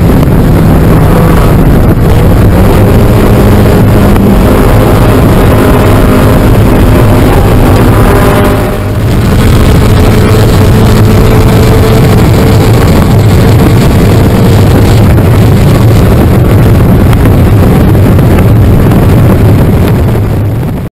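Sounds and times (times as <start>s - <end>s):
race car engine running hard: 0.0s - 20.9s
wind and road noise: 0.0s - 20.9s.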